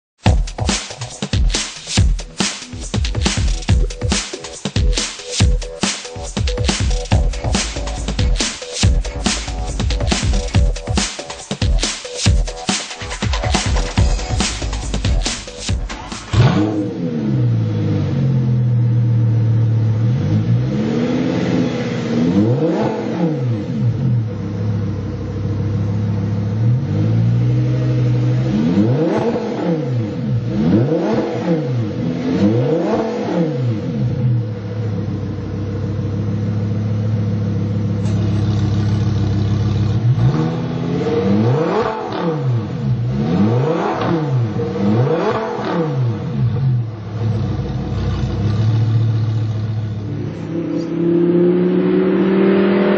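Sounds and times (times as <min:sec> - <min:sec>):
sports car engine idling and revving: 0:12.4 - 0:52.9.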